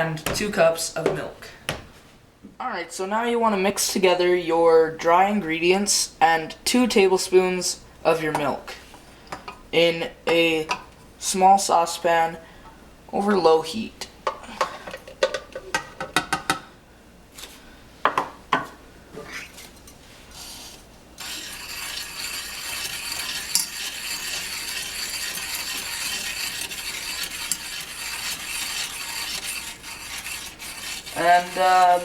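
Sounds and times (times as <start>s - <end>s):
spoon scraping paste in pan: 19.3s - 32.0s.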